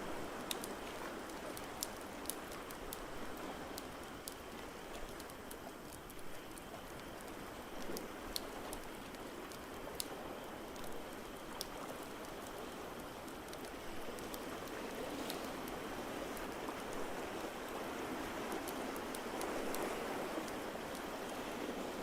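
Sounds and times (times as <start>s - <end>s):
wood fire crackling: 0.3s - 15.5s.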